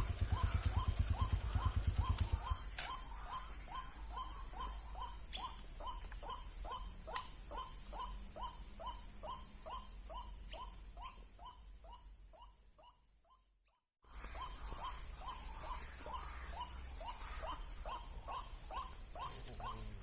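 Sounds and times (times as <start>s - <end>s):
waterhen calling: 0.0s - 9.4s, 14.1s - 20.0s.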